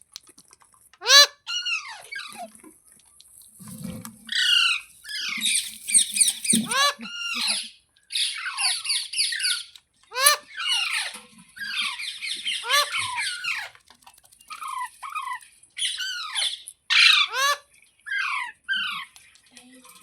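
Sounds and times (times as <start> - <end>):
parrot squawking: 1.0 - 2.4, 4.3 - 13.7, 14.6 - 19.1.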